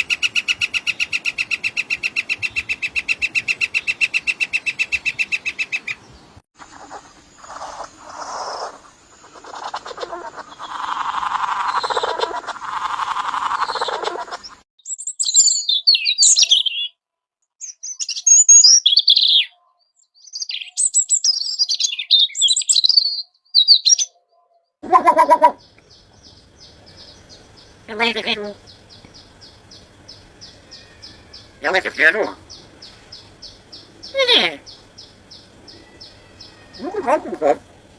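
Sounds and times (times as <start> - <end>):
songbirds chattering: 0.0 - 14.6, 24.8 - 37.9
high-pitched bird chirps: 14.8 - 17.0, 17.6 - 24.2
short low bird call: 24.8 - 25.7.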